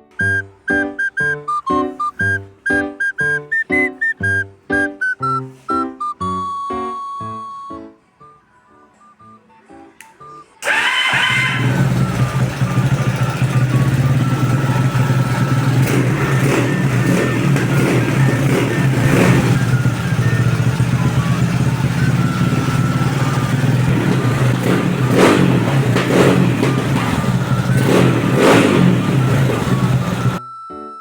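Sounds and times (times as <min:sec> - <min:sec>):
motorcycle engine revving: 0:10.6 - 0:30.4.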